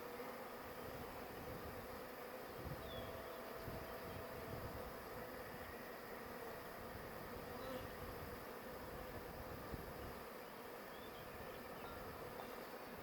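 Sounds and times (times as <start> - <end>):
bee swarm buzzing: 0.0 - 13.0.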